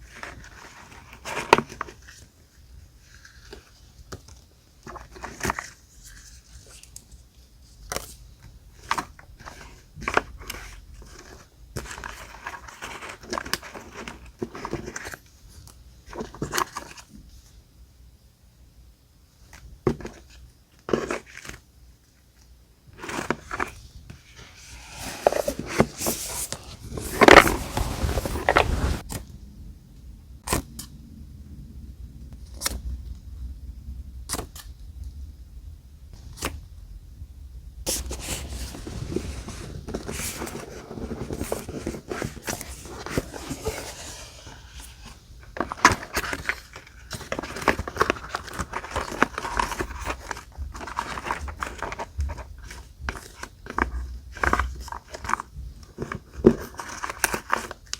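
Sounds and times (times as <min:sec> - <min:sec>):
paper rustling and crinkling: 0:23.0 - 0:29.0, 0:37.9 - 0:57.9
paper scraping: 0:23.1 - 0:29.0, 0:37.9 - 0:52.0.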